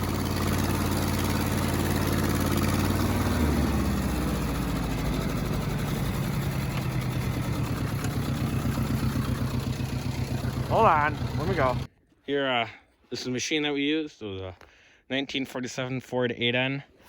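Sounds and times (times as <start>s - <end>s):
tractor engine idling: 0.0s - 11.9s.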